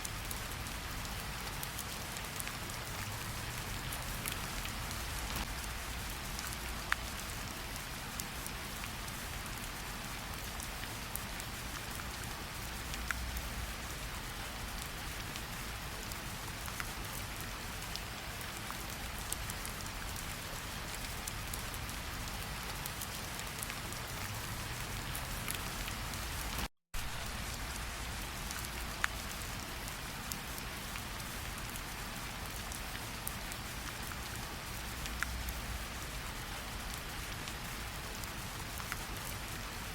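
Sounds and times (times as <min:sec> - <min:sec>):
raindrop ticks: 0:00.0 - 0:12.0, 0:12.6 - 0:39.8
steady rain hiss: 0:00.0 - 0:39.9.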